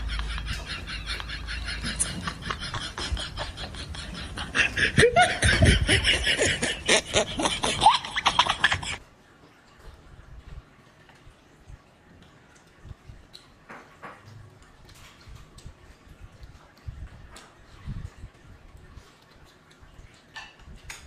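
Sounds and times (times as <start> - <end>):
laughter: 0.0 - 9.0.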